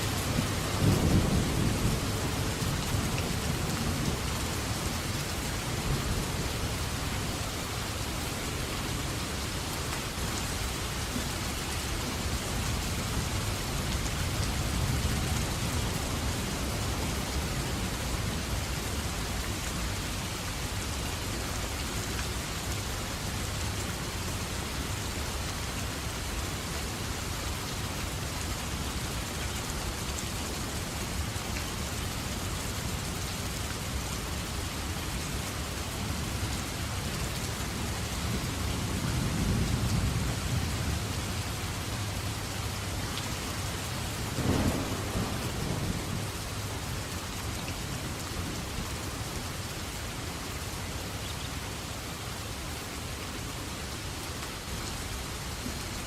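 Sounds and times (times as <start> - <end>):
heavy rain falling: 0.0 - 56.0
thunder rumbling: 44.3 - 46.5.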